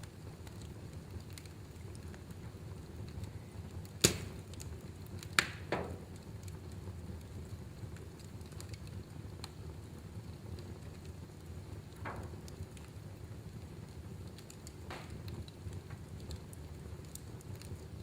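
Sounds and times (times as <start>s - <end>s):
fire crackling: 0.0s - 18.0s
low rumble of flames: 0.0s - 18.0s
loud sharp fire pops: 3.8s - 6.2s, 11.8s - 13.0s, 14.2s - 17.7s.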